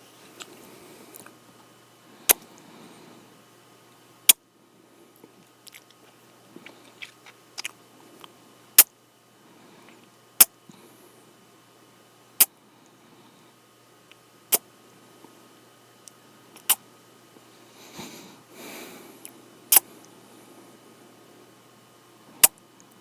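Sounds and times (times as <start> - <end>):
faint breaths: 0.0 - 1.4, 2.0 - 3.5, 4.6 - 5.5, 9.3 - 11.5, 12.5 - 13.8, 17.4 - 22.5
soft wet lip clicks: 16.0 - 16.8, 19.2 - 19.9
loud lip smacks: 16.6 - 16.8, 19.2 - 19.9.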